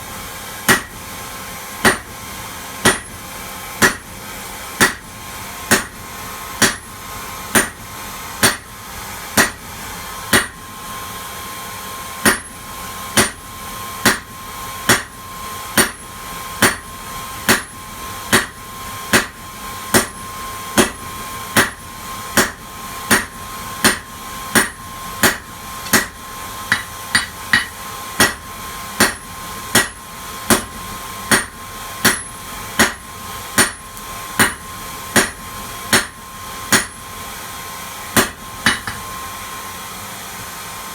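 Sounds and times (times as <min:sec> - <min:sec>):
hammer striking metal on anvil: 0:00.7 - 0:01.0, 0:01.8 - 0:02.1, 0:02.8 - 0:03.2, 0:03.8 - 0:04.1, 0:04.8 - 0:05.1, 0:05.7 - 0:06.0, 0:06.6 - 0:07.8, 0:08.4 - 0:08.7, 0:09.4 - 0:09.6, 0:10.3 - 0:10.6, 0:12.2 - 0:12.6, 0:13.2 - 0:13.4, 0:14.0 - 0:14.3, 0:14.9 - 0:15.2, 0:15.8 - 0:16.9, 0:17.5 - 0:20.2, 0:20.8 - 0:21.8, 0:22.4 - 0:37.1, 0:38.2 - 0:39.1.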